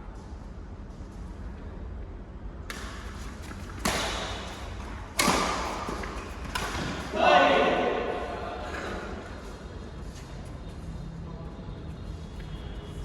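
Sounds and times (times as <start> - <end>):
racket hitting shuttlecock: 2.7 - 9.2.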